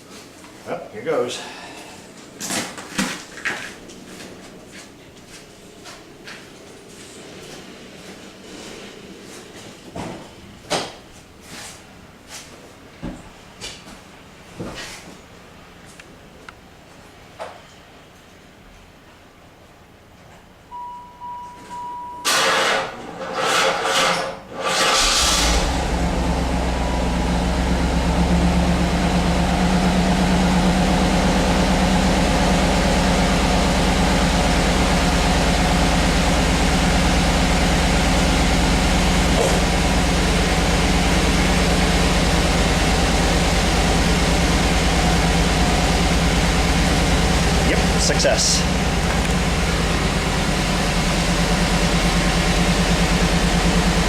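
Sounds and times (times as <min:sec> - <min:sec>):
steady beep: 0:20.7 - 0:22.3
car engine idling: 0:25.0 - 0:54.0.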